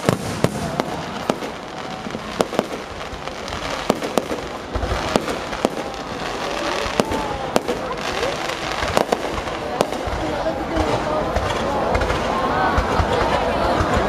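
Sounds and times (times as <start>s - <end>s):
fireworks crackling: 0.0s - 14.0s
fireworks sharp bangs: 0.0s - 14.0s.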